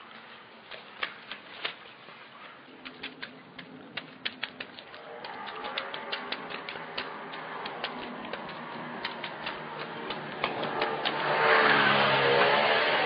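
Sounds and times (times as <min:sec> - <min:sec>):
car passing: 0:04.5 - 0:13.0.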